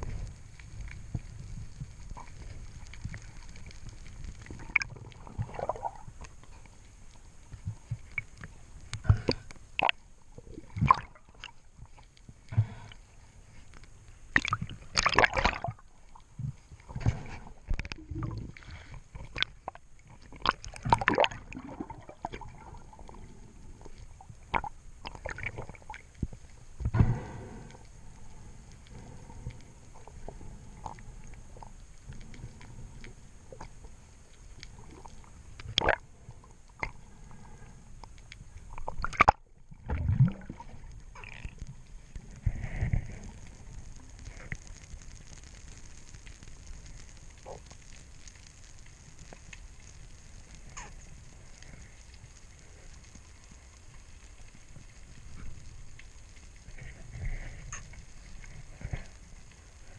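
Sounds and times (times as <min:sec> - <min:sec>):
water sloshing and gurgling: 0:00.0 - 0:45.3
low steady rumble: 0:00.0 - 0:59.9
water splashes: 0:02.1 - 0:06.7, 0:07.7 - 0:13.0, 0:14.3 - 0:27.4, 0:34.8 - 0:37.1, 0:38.7 - 0:41.7.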